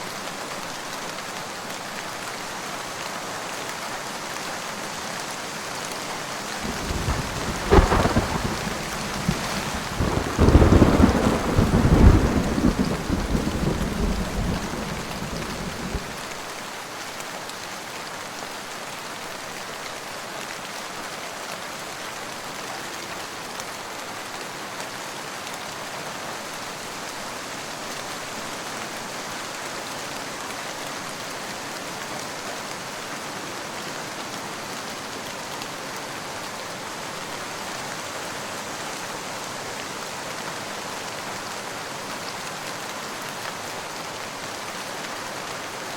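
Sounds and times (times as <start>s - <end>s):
steady rain: 0.0s - 45.9s
thunder rumbling: 6.6s - 16.2s.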